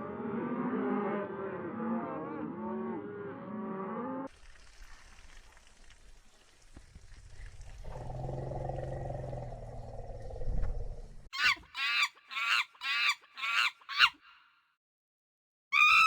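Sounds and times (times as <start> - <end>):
low grumbling animal call: 7.8 - 11.3
high-pitched animal squeals: 11.4 - 14.2, 15.8 - 16.0.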